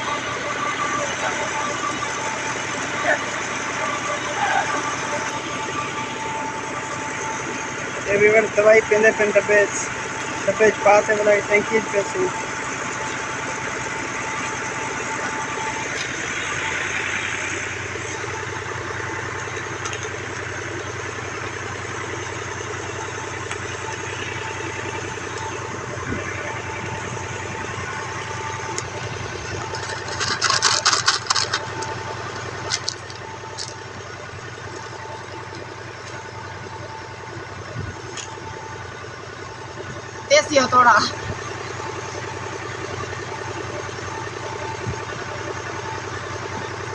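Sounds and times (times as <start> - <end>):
tractor engine running: 0.0 - 46.9
rapid rattling clicks: 28.6 - 33.9.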